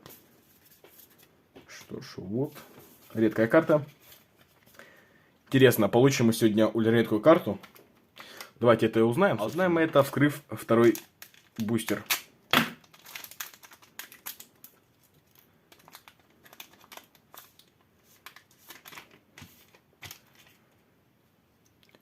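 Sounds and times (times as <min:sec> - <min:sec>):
foil wrapper crinkling: 0:10.6 - 0:20.6.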